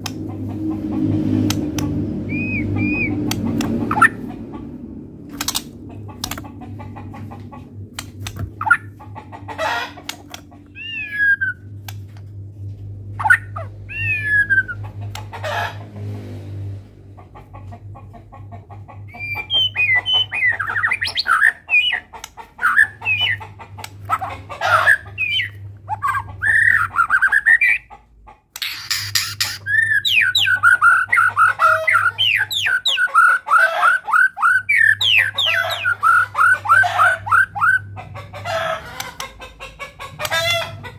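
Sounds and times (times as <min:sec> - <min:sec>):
songbird singing: 0:02.2 - 0:04.3, 0:10.7 - 0:11.6, 0:13.2 - 0:14.9, 0:19.1 - 0:22.0, 0:28.6 - 0:37.8.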